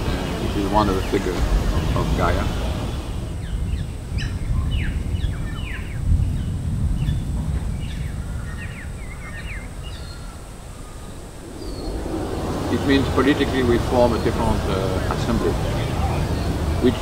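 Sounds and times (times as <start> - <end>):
birds chirping: 0.0 - 17.0
low rumble: 10.8 - 17.0.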